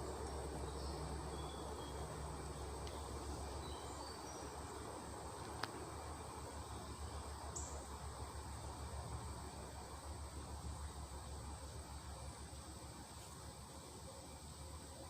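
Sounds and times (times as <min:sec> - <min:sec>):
small birds chirping: 0:00.0 - 0:05.9
steady low hum: 0:00.0 - 0:15.0.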